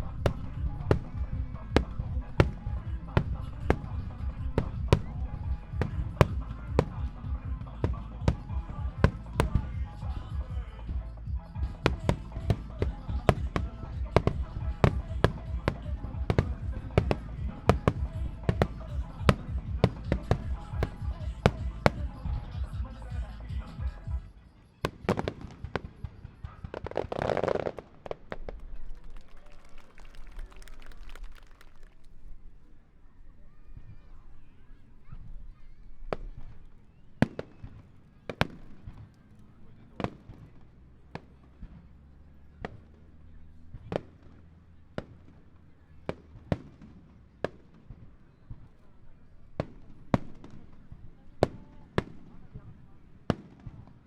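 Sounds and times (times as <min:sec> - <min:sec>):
firework bangs: 0:00.0 - 0:24.2, 0:24.8 - 0:32.3, 0:36.0 - 0:54.0
music soundtrack: 0:00.0 - 0:24.6
firework crackling: 0:00.0 - 0:32.4, 0:35.9 - 0:43.1.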